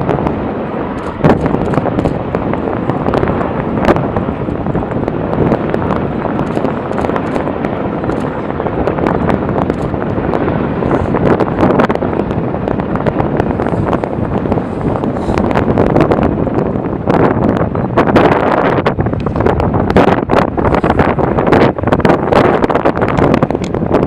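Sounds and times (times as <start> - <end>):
helicopter rotor and engine: 0.0 - 24.0
wind buffeting microphone: 0.0 - 24.0
sharp cracks: 1.0 - 3.2, 6.3 - 8.5.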